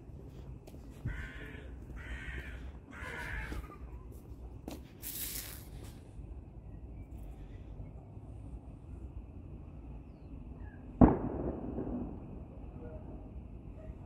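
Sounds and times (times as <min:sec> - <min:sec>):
bird harsh calls: 0:00.9 - 0:04.2
short hiss: 0:05.0 - 0:06.0.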